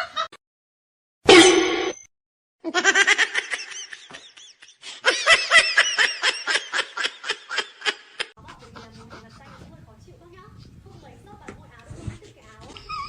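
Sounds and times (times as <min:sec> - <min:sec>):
high-pitched laughter: 0:02.7 - 0:08.6.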